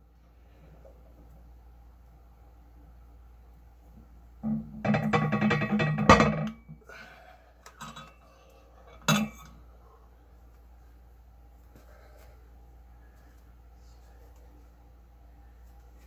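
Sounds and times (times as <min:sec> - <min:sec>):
iron weight plates clanking: 0:04.4 - 0:06.7.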